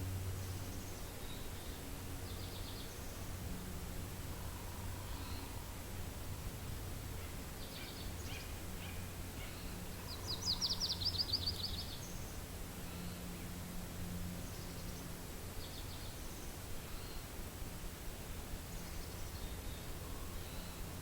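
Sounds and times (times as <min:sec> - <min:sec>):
low wind rumble: 0:00.0 - 0:21.0
songbird singing: 0:00.0 - 0:21.0.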